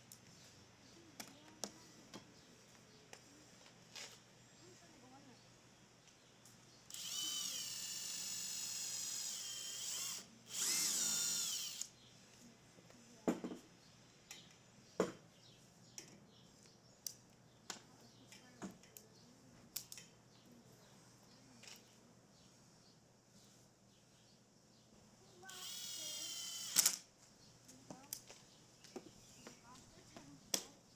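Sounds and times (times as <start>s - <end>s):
power drill whining: 6.9s - 11.9s, 25.5s - 27.0s.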